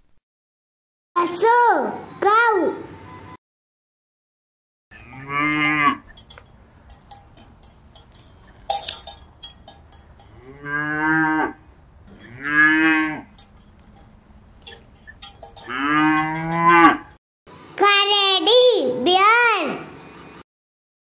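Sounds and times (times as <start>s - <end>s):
cattle mooing: 4.9s - 7.7s, 9.7s - 17.2s
short metallic clinks: 6.0s - 10.6s, 12.0s - 17.2s.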